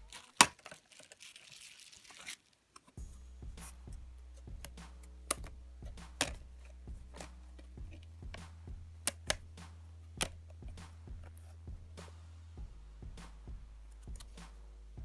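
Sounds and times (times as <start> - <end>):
steady low hum: 3.0 - 15.0
plastic parts clicking: 9.0 - 9.4.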